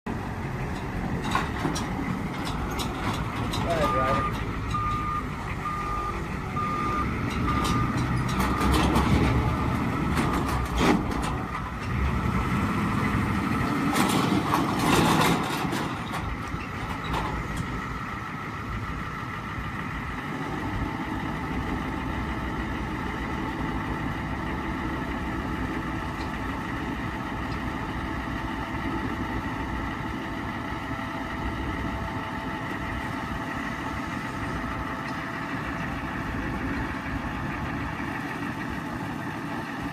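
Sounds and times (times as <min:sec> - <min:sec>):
truck engine running: 0:00.0 - 0:39.9
truck reversing beeper: 0:03.6 - 0:10.2.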